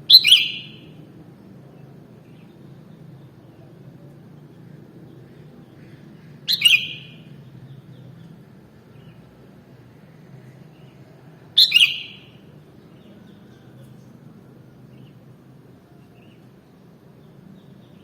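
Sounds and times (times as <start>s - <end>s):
faint low hum: 0.0s - 18.0s
bird calling loudly: 0.1s - 1.0s, 5.8s - 7.4s, 11.6s - 12.4s.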